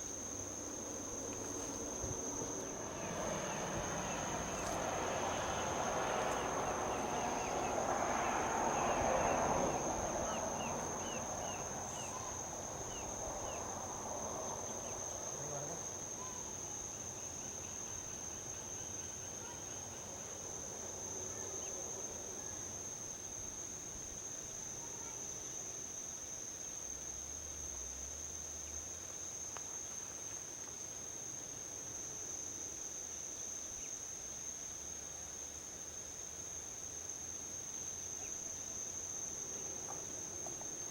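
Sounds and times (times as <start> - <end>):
insect trill: 0.0 - 40.9
vehicle passing on highway: 0.2 - 15.4.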